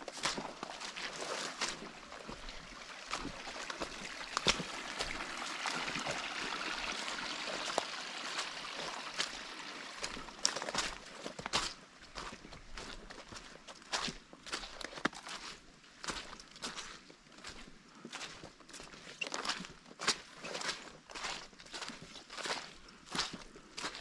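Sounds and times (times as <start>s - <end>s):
stream water rushing: 0.0s - 12.3s
footsteps on a trail: 0.0s - 24.0s.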